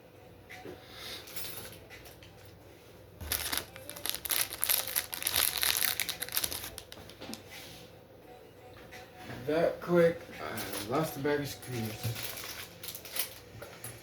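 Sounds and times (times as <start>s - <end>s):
plastic packaging crinkling: 3.2s - 7.4s, 11.7s - 13.4s.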